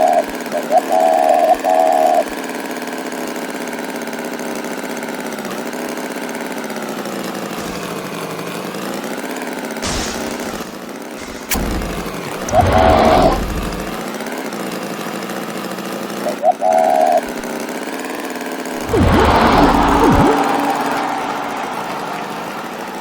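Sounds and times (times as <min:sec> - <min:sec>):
engine droning: 0:07.0 - 0:14.2, 0:18.8 - 0:23.0
burst of noise: 0:09.8 - 0:14.1, 0:18.8 - 0:21.9
click: 0:11.4 - 0:14.0.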